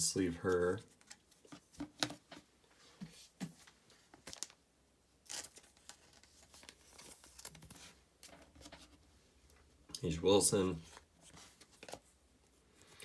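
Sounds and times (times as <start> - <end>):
plastic sleeve rustling: 3.0 - 4.6, 5.2 - 9.7, 10.8 - 12.2.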